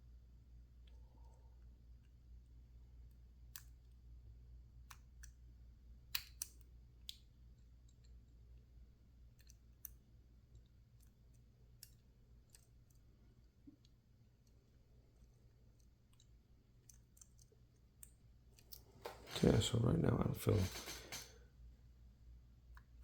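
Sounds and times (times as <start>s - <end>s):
lockpick clicks in padlock: 6.1s - 7.2s.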